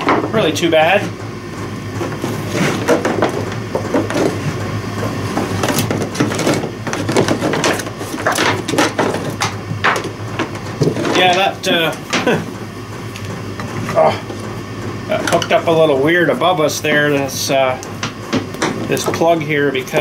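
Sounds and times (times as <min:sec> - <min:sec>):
steady low hum: 0:00.0 - 0:20.0
objects handled on workbench: 0:02.0 - 0:12.4.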